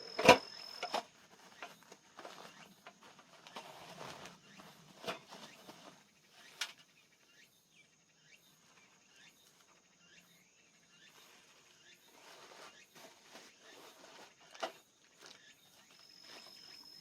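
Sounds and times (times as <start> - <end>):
faint short chirps: 15.5 - 17.0.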